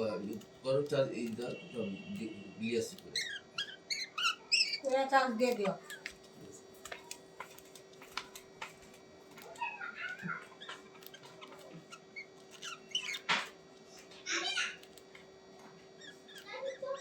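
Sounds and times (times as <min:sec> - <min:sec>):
soft chirping: 0:01.1 - 0:06.2, 0:09.4 - 0:14.9, 0:15.8 - 0:17.0
animal calls: 0:03.1 - 0:05.1.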